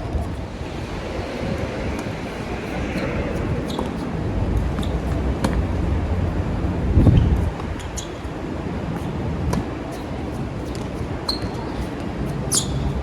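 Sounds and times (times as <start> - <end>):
wind rumble on microphone: 0.0 - 13.0
shoe squeaks: 7.8 - 8.3, 9.9 - 12.9.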